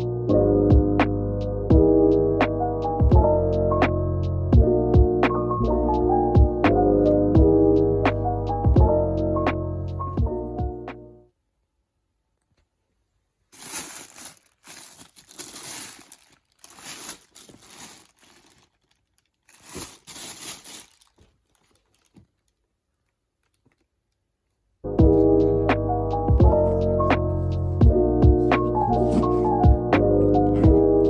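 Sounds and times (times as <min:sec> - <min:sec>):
music: 0:00.0 - 0:11.3, 0:24.9 - 0:31.0
crinkly material rustling: 0:13.4 - 0:24.3, 0:28.4 - 0:29.7.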